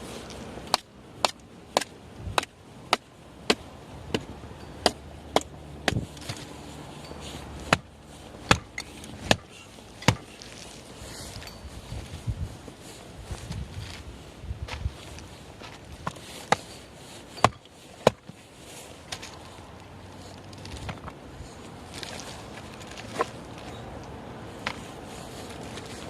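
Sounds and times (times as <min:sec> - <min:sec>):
axe chopping firewood: 0:00.6 - 0:06.5, 0:07.6 - 0:10.6, 0:16.0 - 0:16.7, 0:17.4 - 0:18.4, 0:20.7 - 0:21.2.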